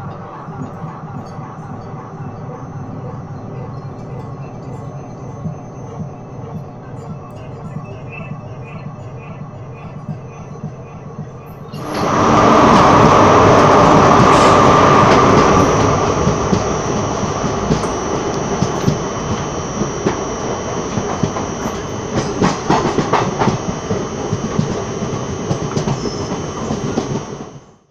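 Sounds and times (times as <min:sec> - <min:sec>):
train wheels rumbling on track: 0:00.0 - 0:27.7
locomotive rushing past: 0:11.7 - 0:27.7.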